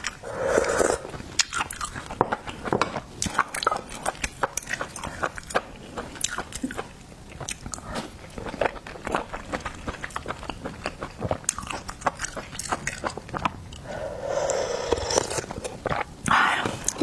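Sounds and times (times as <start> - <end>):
wet chewing and smacking: 1.1 - 13.8.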